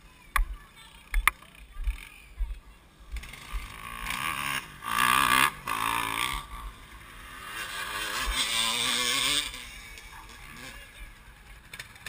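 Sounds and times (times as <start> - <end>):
motocross engine revving: 3.1 - 12.0.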